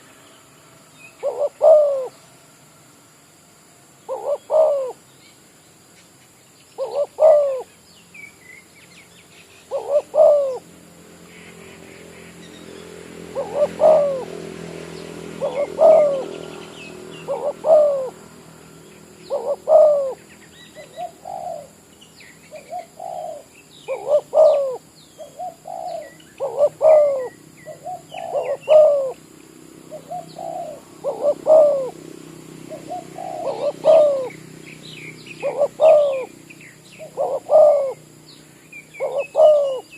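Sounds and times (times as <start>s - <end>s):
small birds chirping faintly: 0.0s - 39.9s
dove cooing: 1.2s - 2.2s, 4.1s - 5.0s, 6.8s - 7.7s, 9.7s - 10.7s, 13.2s - 21.8s, 22.5s - 29.2s, 29.9s - 38.2s, 38.9s - 39.9s.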